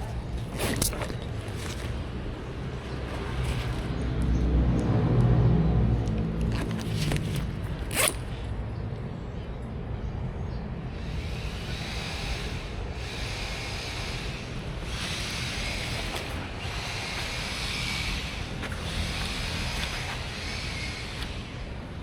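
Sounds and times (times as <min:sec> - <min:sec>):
wind and road hiss: 0:06.2 - 0:22.0.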